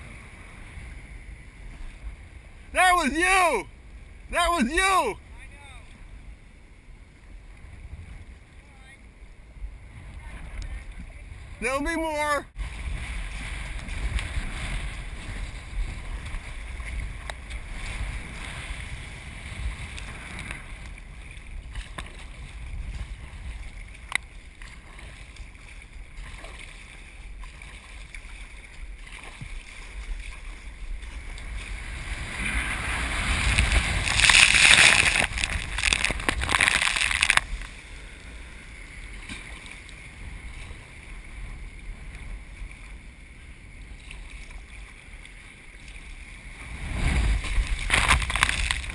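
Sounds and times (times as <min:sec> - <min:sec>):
surf rumbling: 0:00.0 - 0:48.9
breaking whitewater rush: 0:02.7 - 0:03.7, 0:04.3 - 0:05.2, 0:31.5 - 0:37.6
wind buffeting microphone: 0:12.5 - 0:44.0.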